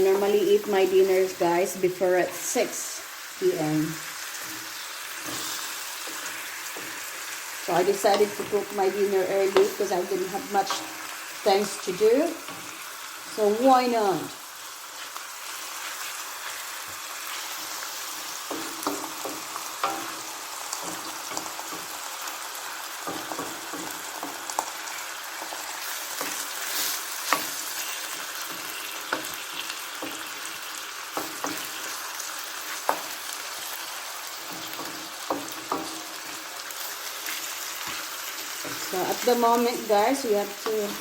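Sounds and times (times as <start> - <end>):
chicken sizzling in a pan: 0.0 - 41.0
utensil tapping a pan: 18.5 - 21.9.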